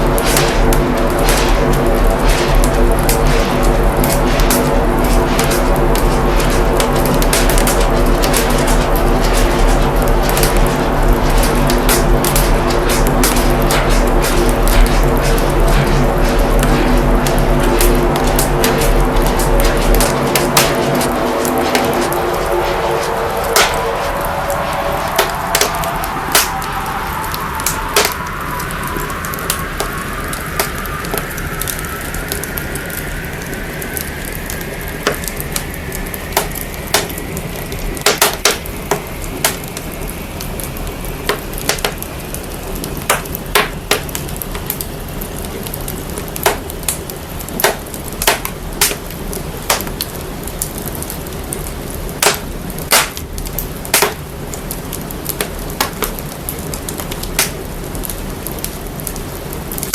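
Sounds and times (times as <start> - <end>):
deep rumble: 0.0 - 38.0
fire crackling and popping: 0.0 - 59.9
filtered hiss rising in pitch: 10.1 - 38.0.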